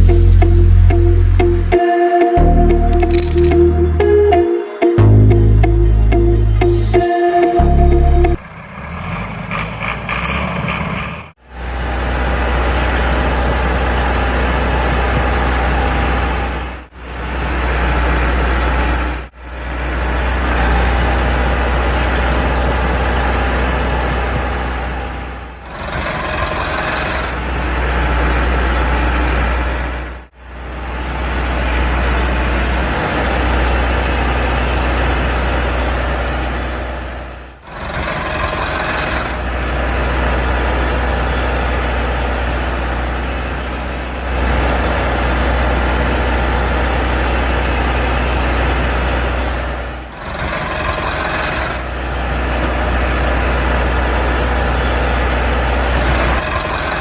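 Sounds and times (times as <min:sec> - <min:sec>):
tractor engine rumbling: 0:00.0 - 0:01.8, 0:30.9 - 0:57.0.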